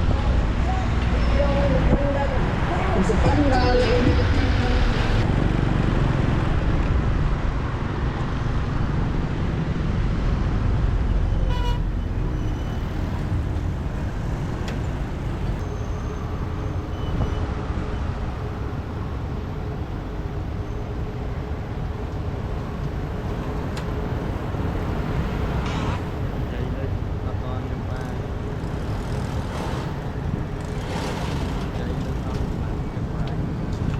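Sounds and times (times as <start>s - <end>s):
road and wind noise: 0.0s - 33.9s
horn toot: 11.3s - 12.6s
motorbike engine: 27.8s - 33.9s.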